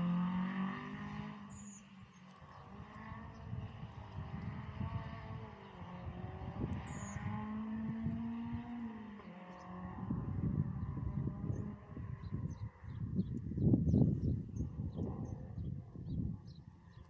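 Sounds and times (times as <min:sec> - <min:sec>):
rally car engine: 0:00.0 - 0:12.8.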